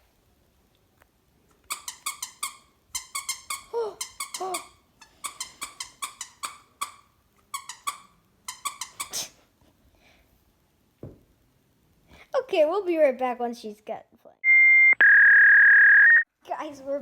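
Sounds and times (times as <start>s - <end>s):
squeaky dog toy squeaking: 1.7s - 9.3s.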